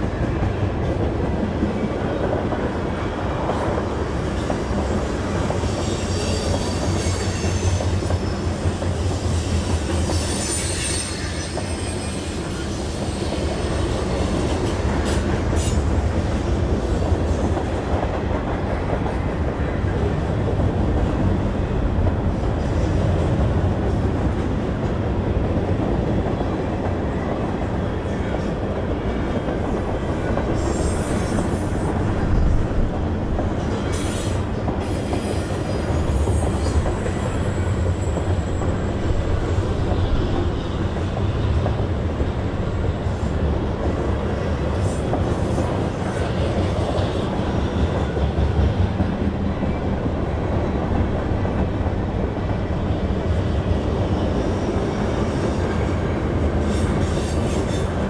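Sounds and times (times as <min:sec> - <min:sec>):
train wheels rumbling on rail: 0:00.0 - 0:58.0
high wheel squeal: 0:04.8 - 0:14.0.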